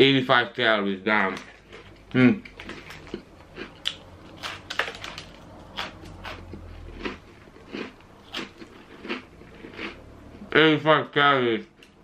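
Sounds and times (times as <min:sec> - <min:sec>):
man chewing cookie: 0:01.4 - 0:10.6.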